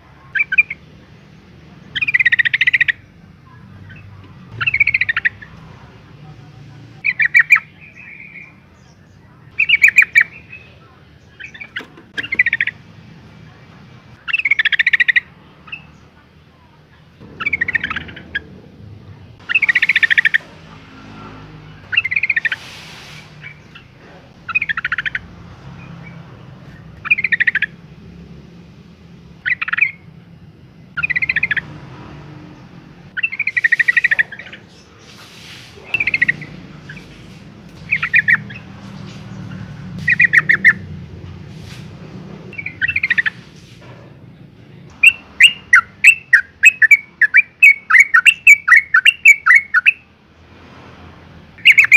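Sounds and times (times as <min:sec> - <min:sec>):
bird chattering calls: 0:00.2 - 0:05.8, 0:07.0 - 0:12.9, 0:14.1 - 0:16.2, 0:17.2 - 0:28.1, 0:29.4 - 0:30.2, 0:30.9 - 0:31.8, 0:33.1 - 0:40.9, 0:42.5 - 0:43.7, 0:44.9 - 0:50.1, 0:51.6 - 0:51.9.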